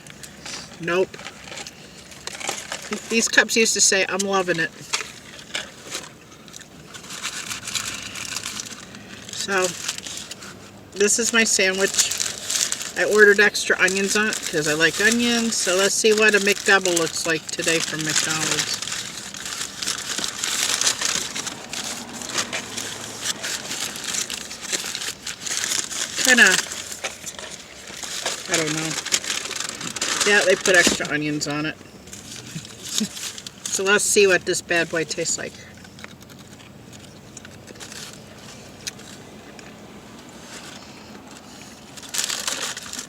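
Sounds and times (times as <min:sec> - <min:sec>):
paper wrapper crinkling: 0:00.0 - 0:43.0
short crackly burst: 0:17.7 - 0:31.0.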